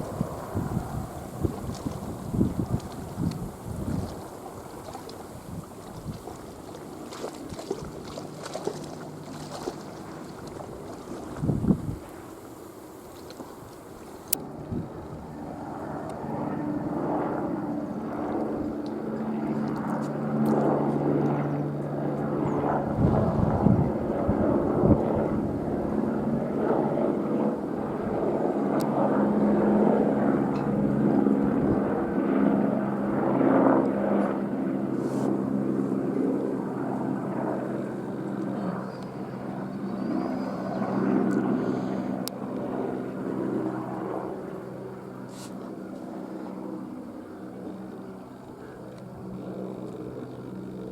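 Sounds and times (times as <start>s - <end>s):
helicopter rotor and turbine: 0.0s - 50.9s.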